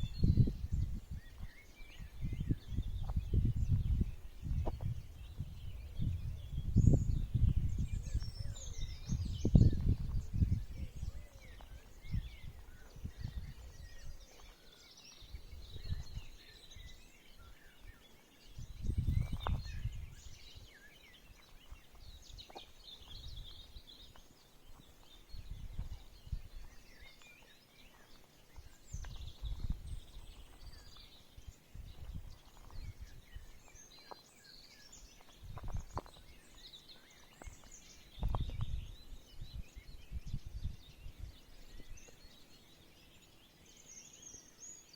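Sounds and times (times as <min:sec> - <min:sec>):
small birds chirping and twittering: 0:00.0 - 0:44.9.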